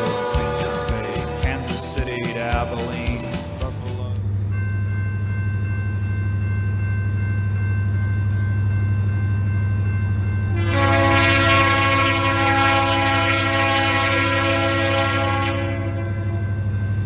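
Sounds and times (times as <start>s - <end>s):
locomotive air horn blast: 0.0s - 1.9s, 10.5s - 16.4s
locomotive rumbling: 0.0s - 17.0s.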